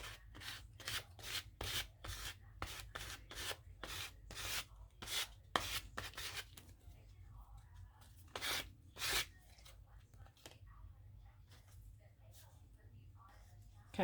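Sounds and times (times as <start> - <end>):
rasping strokes on paper: 0.0 - 6.5, 8.3 - 9.4.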